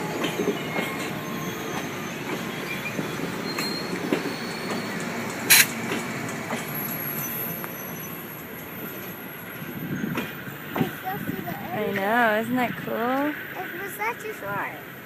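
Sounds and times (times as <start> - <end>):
wheel squeals: 0.0 - 12.0
train cars rumbling past: 0.0 - 15.0.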